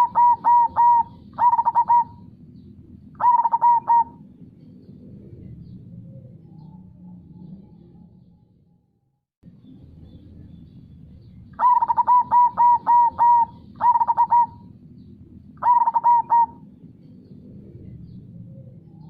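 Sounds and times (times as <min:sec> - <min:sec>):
dove cooing: 0:00.0 - 0:04.4, 0:11.6 - 0:14.8, 0:15.5 - 0:19.0.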